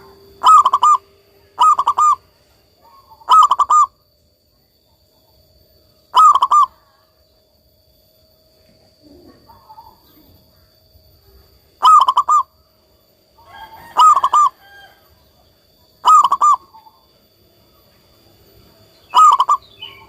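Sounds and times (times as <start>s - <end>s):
dove cooing: 0.0s - 4.0s, 6.1s - 7.2s, 8.9s - 10.8s, 11.8s - 12.6s, 13.4s - 15.1s, 15.9s - 17.1s, 19.1s - 20.0s
faint bird calls: 0.0s - 7.4s, 8.7s - 20.0s.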